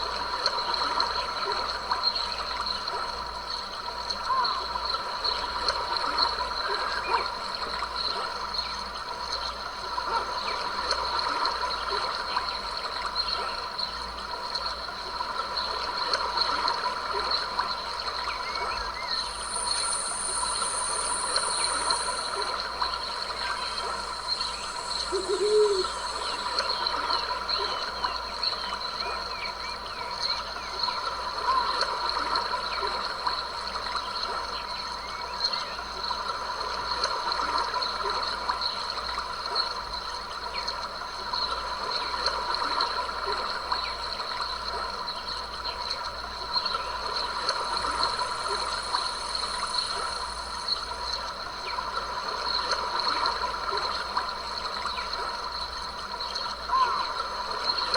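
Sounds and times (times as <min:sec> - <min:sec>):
stream trickling and splashing: 0:00.0 - 0:57.9
thin very high tone: 0:19.2 - 0:26.5
high animal calls: 0:19.3 - 0:26.6.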